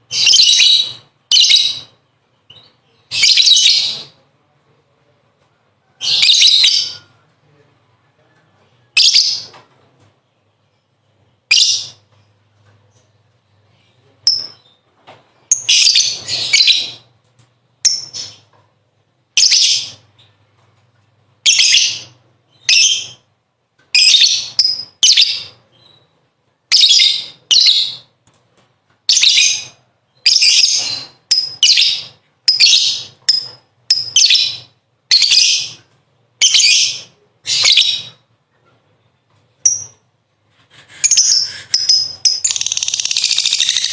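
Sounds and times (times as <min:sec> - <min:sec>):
lovebird shrill chattering: 0:41.0 - 0:43.9.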